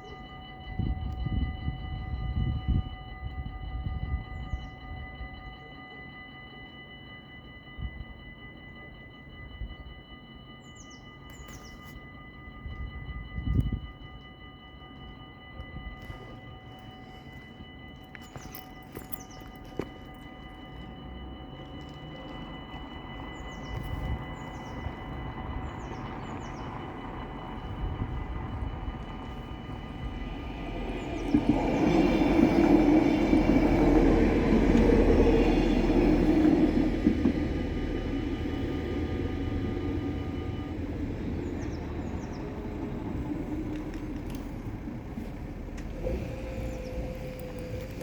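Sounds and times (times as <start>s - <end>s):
crossing warning bell ringing: 0.0s - 48.0s
train wheels rumbling on rails: 10.7s - 48.0s.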